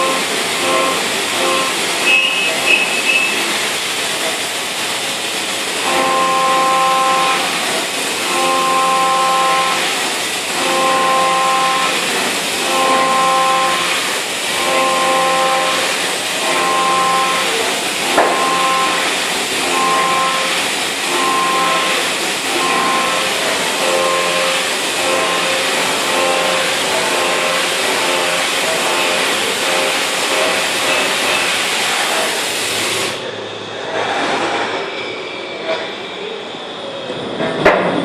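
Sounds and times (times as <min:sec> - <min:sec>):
milling cutter cutting tone: 0:00.0 - 0:04.4, 0:05.7 - 0:33.2
high squeal: 0:01.4 - 0:03.6.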